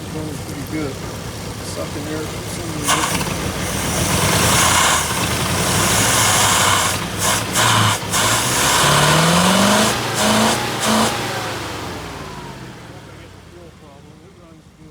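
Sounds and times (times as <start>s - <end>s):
man talking: 0.0s - 3.4s, 12.6s - 14.9s
engine revving: 0.0s - 14.8s.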